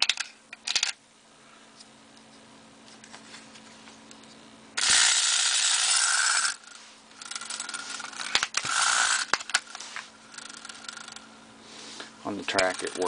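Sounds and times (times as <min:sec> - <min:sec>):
clockwork motor whirring: 0:04.8 - 0:11.3, 0:12.4 - 0:13.0.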